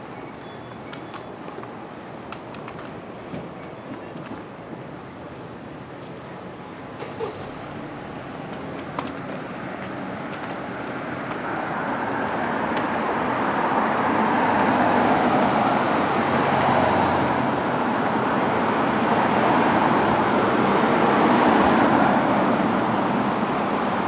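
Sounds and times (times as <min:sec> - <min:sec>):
vehicle approaching on road: 0:07.2 - 0:24.0.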